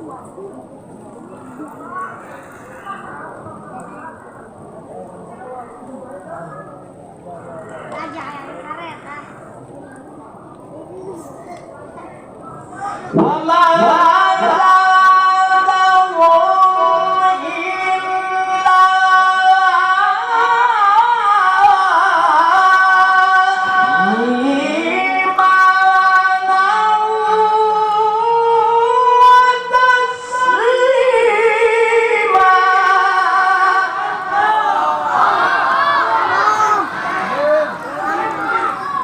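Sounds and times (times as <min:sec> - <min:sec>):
man chanting melodic recitation: 0:13.2 - 0:20.6, 0:21.6 - 0:26.4.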